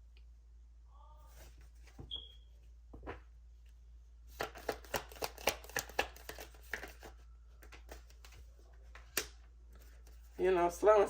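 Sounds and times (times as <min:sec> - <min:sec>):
cards being shuffled: 0:04.3 - 0:10.5.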